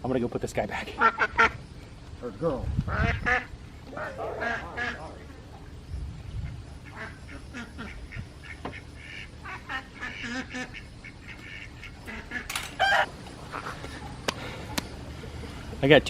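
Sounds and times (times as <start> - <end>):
ducks quacking: 0.8 - 1.6, 2.9 - 15.8.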